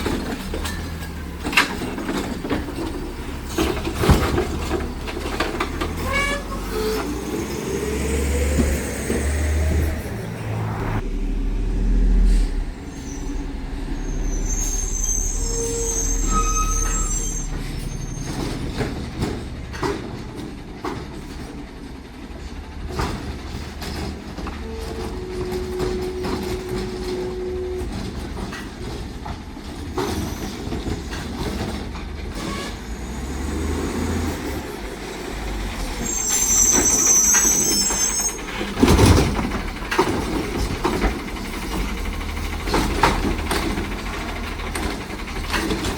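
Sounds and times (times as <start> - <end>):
knocks and clanks: 0.0 - 11.0, 16.9 - 21.8, 22.8 - 33.3, 34.2 - 45.9
garbage truck engine running: 0.0 - 45.9
high-pitched squeals: 5.7 - 18.6, 35.8 - 39.0.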